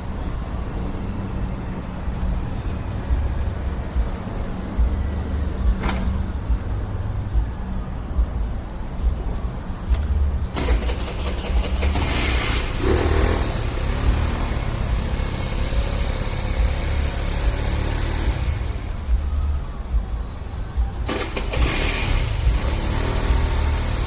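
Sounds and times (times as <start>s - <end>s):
scooter engine starting: 10.5s - 19.0s, 21.0s - 24.0s.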